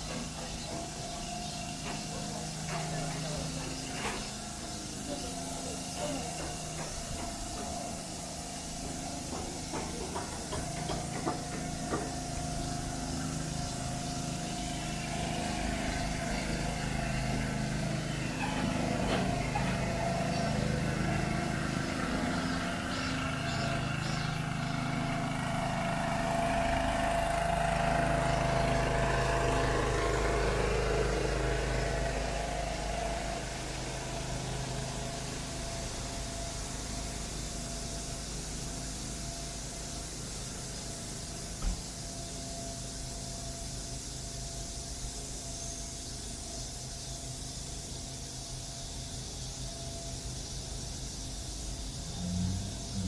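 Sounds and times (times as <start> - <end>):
city traffic: 51.7 - 53.0.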